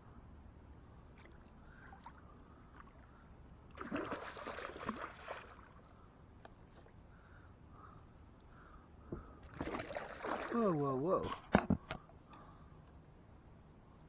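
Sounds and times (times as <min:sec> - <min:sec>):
water splashing and sloshing: 0:01.1 - 0:06.0, 0:09.1 - 0:12.0.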